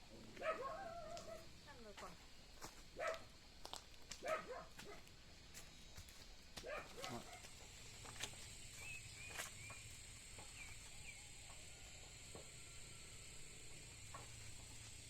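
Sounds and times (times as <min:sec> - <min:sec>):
faint high bird chirps: 0:08.7 - 0:11.9.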